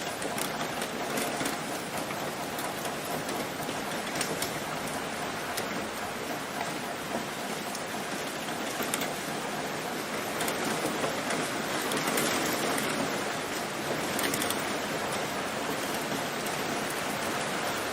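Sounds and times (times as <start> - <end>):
rain falling on leaves: 0.0 - 17.9.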